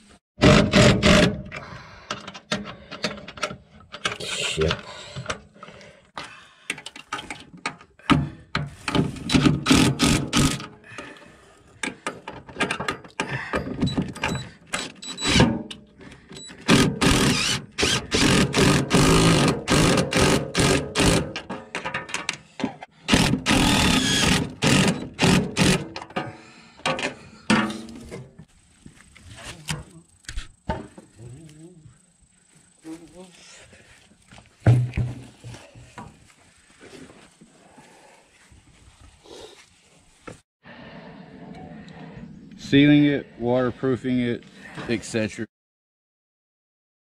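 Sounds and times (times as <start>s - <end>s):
mechanical tool bursts: 9.4s - 10.7s, 16.4s - 21.4s, 23.1s - 26.0s.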